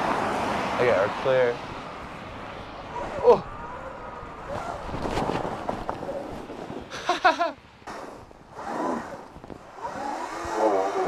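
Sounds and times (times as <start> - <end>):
wind on microphone: 3.0 - 6.9.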